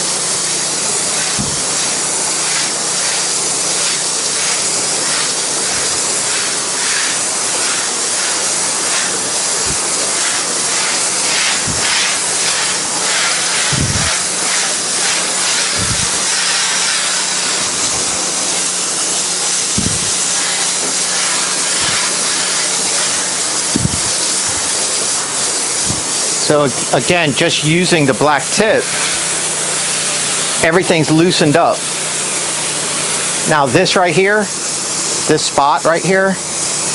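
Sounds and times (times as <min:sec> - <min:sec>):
pressure washer spraying water: 0:00.0 - 0:36.9
dull low thumps: 0:01.4 - 0:01.6, 0:13.7 - 0:14.1, 0:19.8 - 0:20.2, 0:23.8 - 0:24.7.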